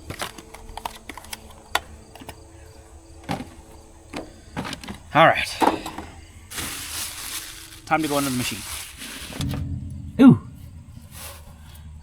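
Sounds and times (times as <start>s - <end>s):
parts clicking and knocking: 0.0s - 6.8s.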